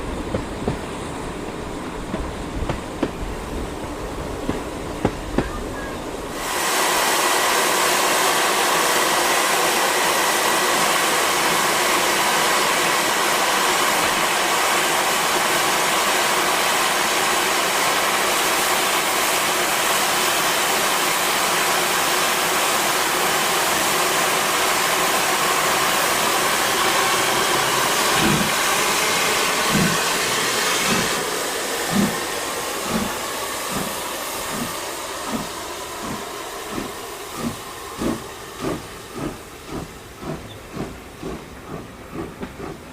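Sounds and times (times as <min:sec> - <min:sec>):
locomotive exhaust beats: 0:00.0 - 0:06.3, 0:27.9 - 0:28.7, 0:29.5 - 0:42.9
steam hissing: 0:00.0 - 0:42.9.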